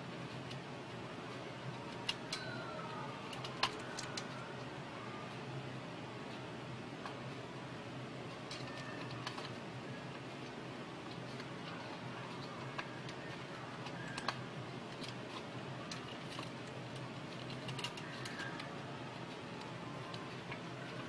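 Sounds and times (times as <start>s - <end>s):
steady low hum: 9.6s - 15.8s.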